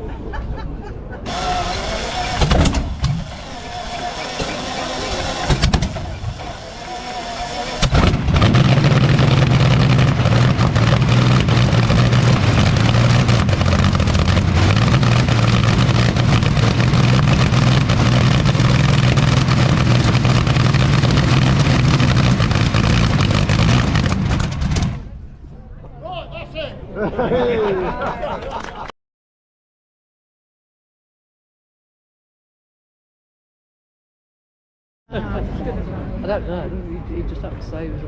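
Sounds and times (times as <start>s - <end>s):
loud aircraft engine running: 1.3s - 25.1s.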